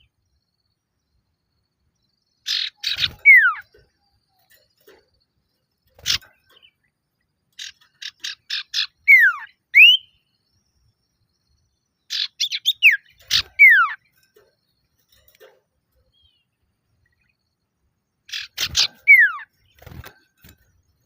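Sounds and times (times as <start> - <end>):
bird slurred whistles: 9.0 - 10.1.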